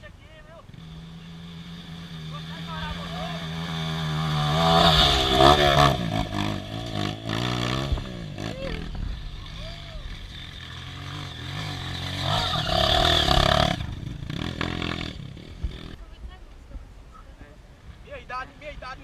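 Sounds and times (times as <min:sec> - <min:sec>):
engine revving hard: 0:00.8 - 0:16.0.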